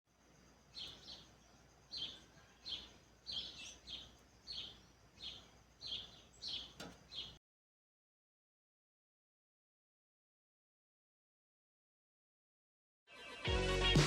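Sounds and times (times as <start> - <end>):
bird chirping: 0.1 - 7.4
faint background noise: 0.1 - 7.4.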